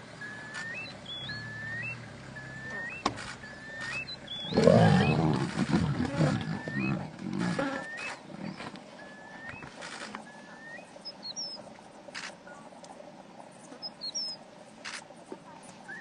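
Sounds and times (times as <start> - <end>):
faint high chirps: 0.2 - 5.2
bird whistling: 0.2 - 5.3, 6.4 - 7.0, 7.6 - 8.3, 9.0 - 11.6, 13.8 - 14.4
lion growling: 4.3 - 8.8.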